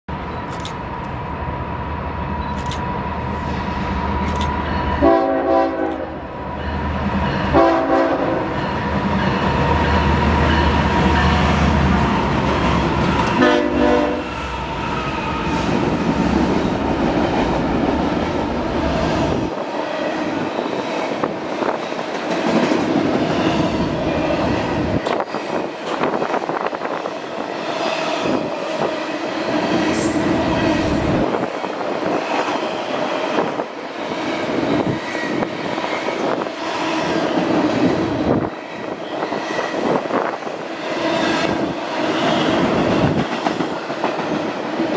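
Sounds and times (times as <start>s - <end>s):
train wheels rolling on rails: 0.1s - 44.9s
locomotive air horn blasts: 5.0s - 6.2s, 7.5s - 8.5s, 13.4s - 14.3s.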